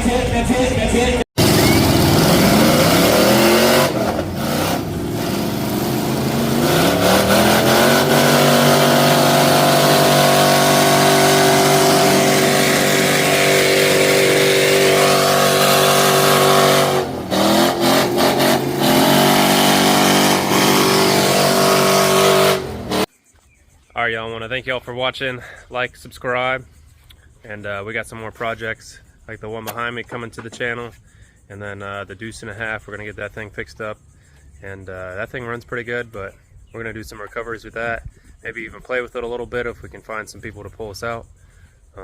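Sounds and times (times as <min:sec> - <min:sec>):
truck engine revving hard: 0:01.4 - 0:23.1.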